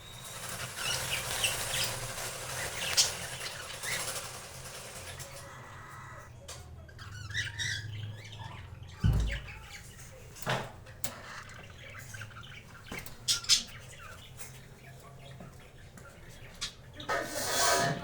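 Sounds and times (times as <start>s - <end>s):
cockatiels chirping and squawking: 0.0s - 6.3s, 6.9s - 18.0s
loud low thump: 9.0s - 9.6s.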